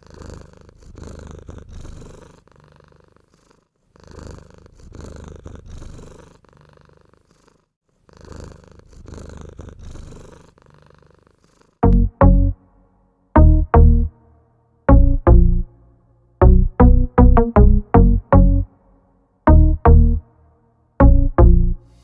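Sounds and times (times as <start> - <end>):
cat purring: 0.0 - 11.9.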